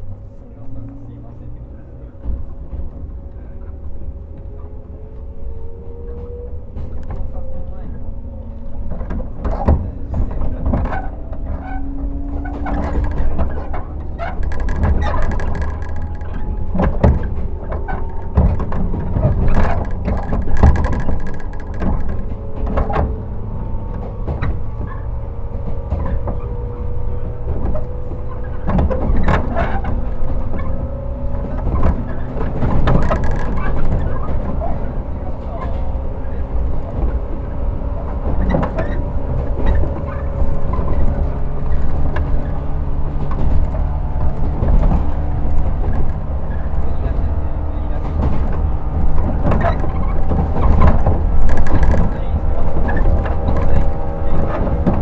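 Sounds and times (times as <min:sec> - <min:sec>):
faint traction motor hum: 0:00.0 - 0:55.0
train wheels rumbling on rails: 0:00.0 - 0:55.0
sharp clicks and knocks: 0:02.2 - 0:55.0.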